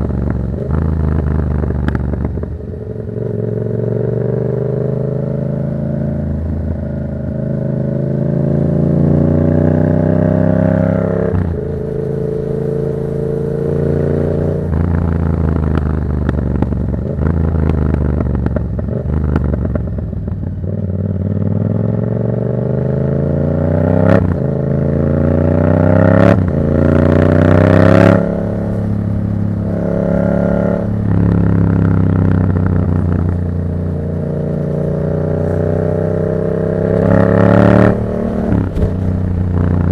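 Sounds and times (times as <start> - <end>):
motorcycle engine shifting gears: 0.0 - 22.0, 22.9 - 39.9
exhaust cracks: 36.6 - 39.9.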